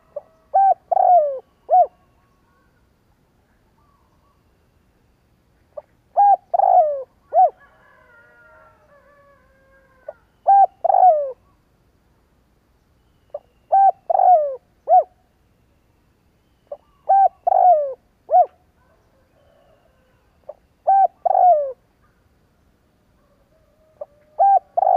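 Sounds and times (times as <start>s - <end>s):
dove cooing: 0.0s - 2.7s, 5.8s - 8.2s, 9.0s - 11.4s, 13.3s - 15.2s, 16.7s - 21.8s, 23.2s - 24.9s
faint bird twittering: 0.0s - 7.6s, 12.8s - 23.3s.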